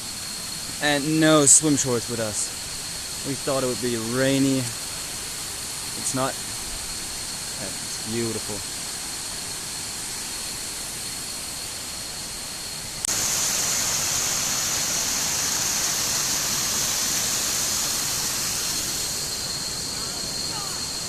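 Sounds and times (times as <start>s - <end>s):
waterfall rushing: 13.1s - 21.0s.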